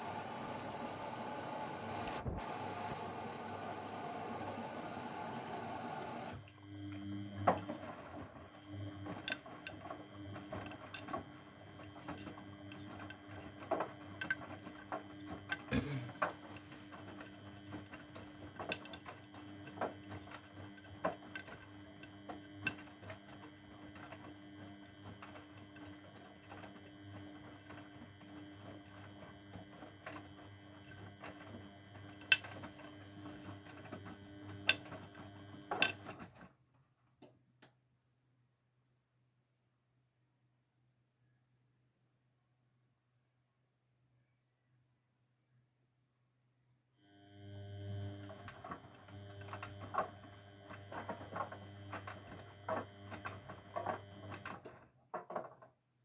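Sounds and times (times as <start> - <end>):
washing machine motor hum and whine: 0.0 - 36.3, 47.0 - 54.8.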